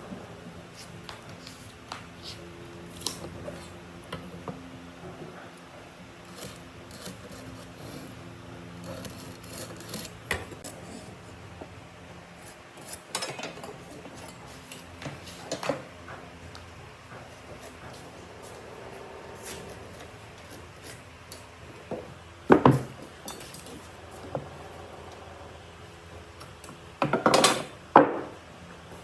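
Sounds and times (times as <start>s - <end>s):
knocks and scraping on wood: 12.8s - 25.2s.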